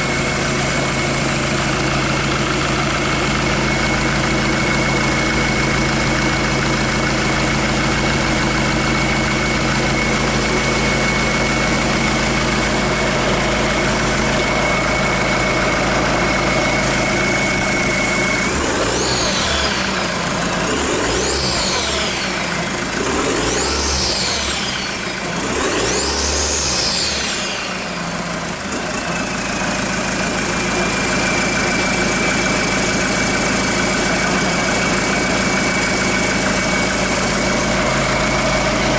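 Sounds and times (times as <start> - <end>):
high steady whine: 0.0 - 23.0
diesel engine idling and revving: 0.0 - 38.9.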